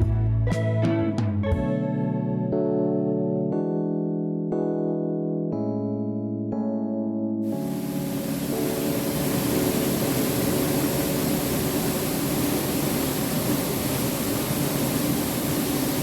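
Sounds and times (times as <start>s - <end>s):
steady rushing noise: 7.4s - 16.0s.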